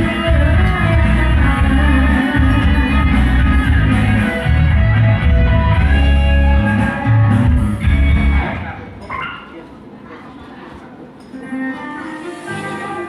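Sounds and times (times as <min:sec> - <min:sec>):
loud music with guitar and bass beat: 0:00.0 - 0:08.8.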